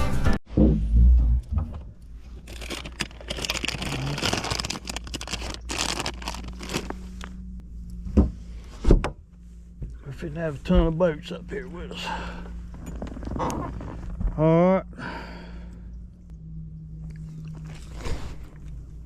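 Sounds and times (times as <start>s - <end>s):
low motor hum: 0.8s - 19.0s
rustling handling noise: 2.0s - 7.4s.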